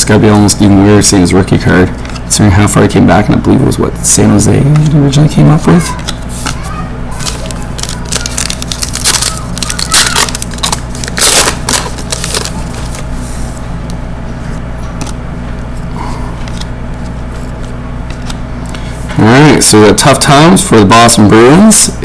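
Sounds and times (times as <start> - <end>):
steady low hum: 0.0 - 22.0
trading cards crinkling and rustling: 4.4 - 19.0.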